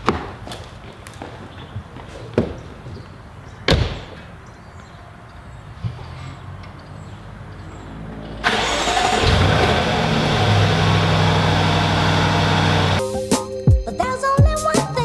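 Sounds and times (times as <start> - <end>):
engine starting and running: 8.3 - 13.0.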